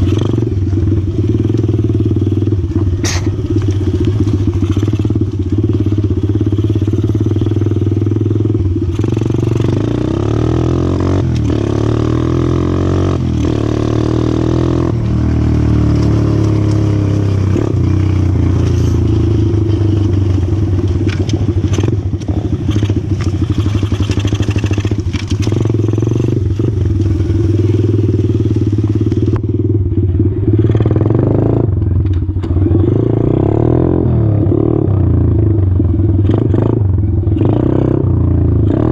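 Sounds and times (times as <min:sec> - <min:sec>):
motorbike engine revving: 0:00.0 - 0:38.9
rattles and clatter: 0:15.9 - 0:28.0.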